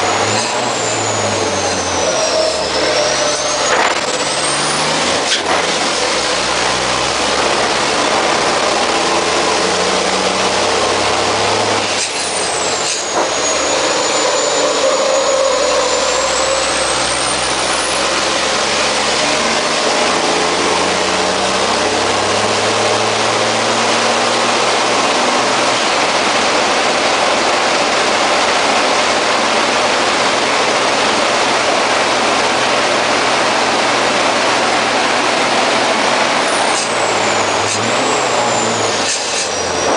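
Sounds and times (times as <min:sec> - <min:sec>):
truck diesel engine pulling hard: 0:00.0 - 0:39.9
high gliding whistle: 0:00.6 - 0:04.6, 0:12.5 - 0:18.4.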